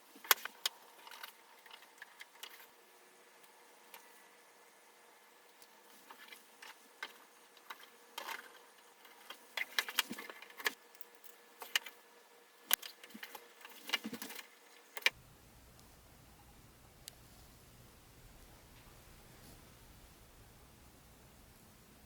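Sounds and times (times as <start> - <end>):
small parts clicking and tapping: 0.2 - 2.8, 5.5 - 12.0, 12.7 - 15.2.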